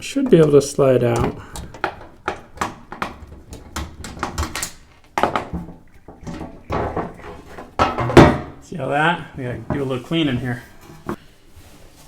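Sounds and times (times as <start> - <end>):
panel clicking knocking and clattering: 0.3 - 8.6.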